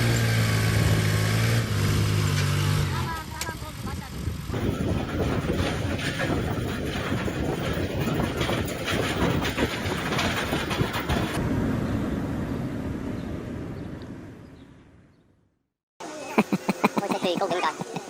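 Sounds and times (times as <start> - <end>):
vehicle rumble: 0.0 - 15.6
clattering: 4.6 - 11.4.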